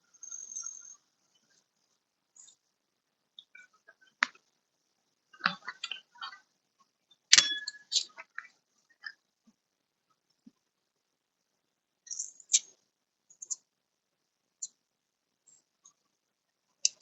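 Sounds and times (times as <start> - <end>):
metal clink with ring: 7.3 - 8.0.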